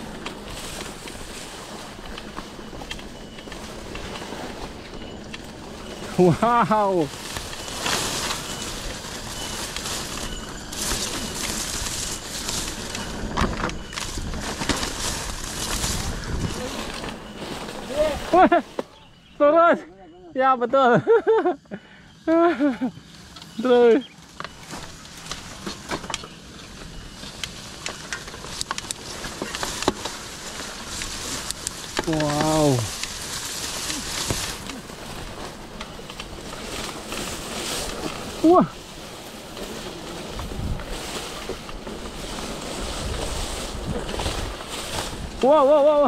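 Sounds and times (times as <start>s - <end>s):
bike rattling over bumps: 0.0s - 19.5s, 22.6s - 46.0s
bike tyre and trail noise: 0.0s - 46.0s
wind buffeting microphone: 7.1s - 18.4s, 40.1s - 45.4s.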